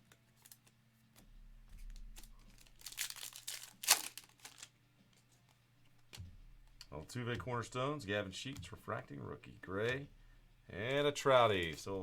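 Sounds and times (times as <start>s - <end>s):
wrapper tearing and crinkling: 1.9s - 4.7s.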